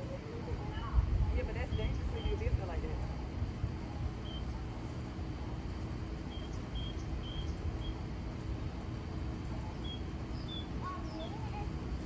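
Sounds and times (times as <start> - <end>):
low outdoor rumble: 0.0 - 12.0
bird chirping: 4.2 - 4.5, 6.3 - 8.0, 9.8 - 11.5.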